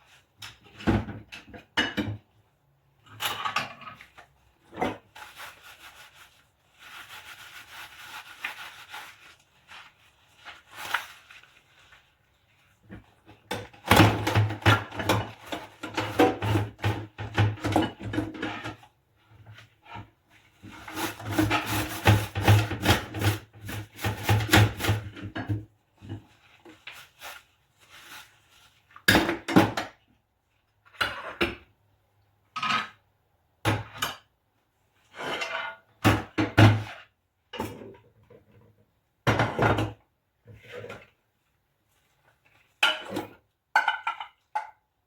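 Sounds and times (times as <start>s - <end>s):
dishes knocking and clinking: 42.8s - 44.8s.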